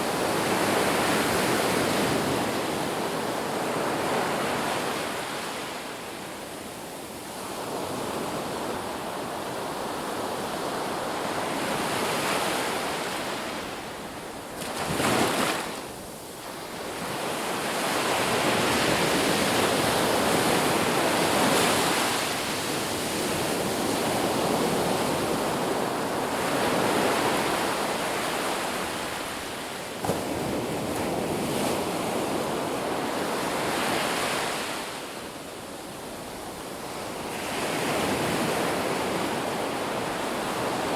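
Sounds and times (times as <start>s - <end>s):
waves breaking on a beach: 0.0s - 40.9s.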